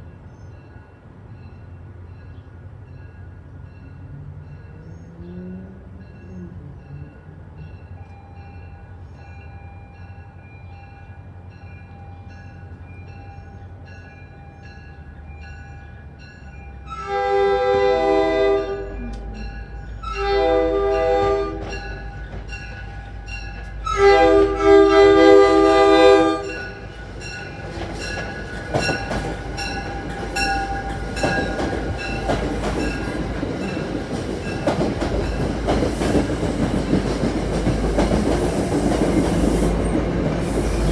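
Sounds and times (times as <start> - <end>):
crossing bell ringing: 0.0 - 35.7
train air horn blasts: 16.9 - 19.4, 20.0 - 21.8, 23.8 - 26.8
train wheels clacking over rails: 25.4 - 40.9.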